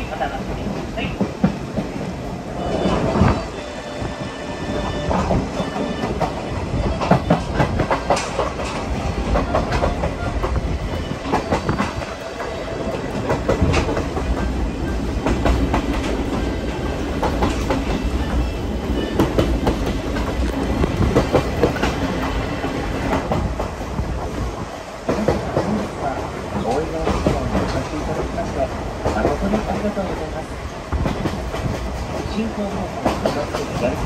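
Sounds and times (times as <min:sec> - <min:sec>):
train carriage low rumble: 0:00.0 - 0:34.0
wheels clicking over rail joints: 0:05.1 - 0:24.3.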